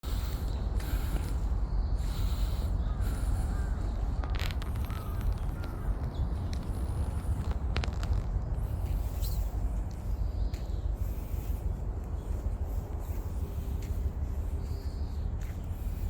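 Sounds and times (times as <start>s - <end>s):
steady low rumble: 0.0s - 16.0s
crows cawing: 2.1s - 6.1s.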